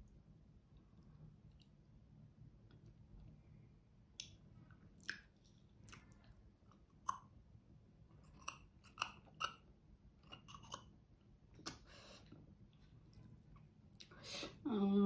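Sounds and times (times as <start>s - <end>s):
wet mouth clicks and smacks: 4.2s - 6.2s
faint chewing: 4.2s - 7.4s, 8.2s - 9.6s, 10.2s - 10.9s.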